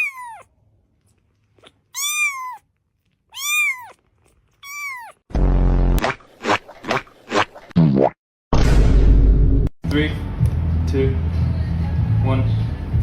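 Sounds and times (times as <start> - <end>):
cat meowing: 0.0 - 0.5, 1.6 - 2.7, 3.3 - 5.2
loud low buzz: 5.3 - 6.0.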